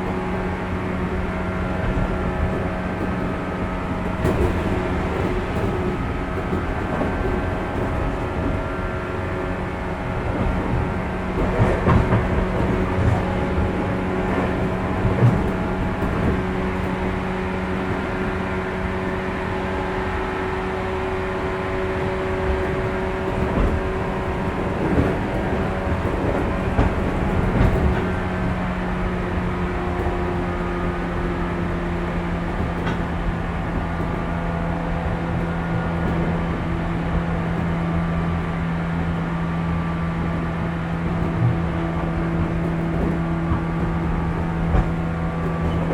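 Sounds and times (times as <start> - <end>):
train traction motors humming: 0.0 - 45.9
wheels running on rails: 0.0 - 45.9
wheels knocking over rail joints: 1.6 - 19.2, 21.4 - 45.9.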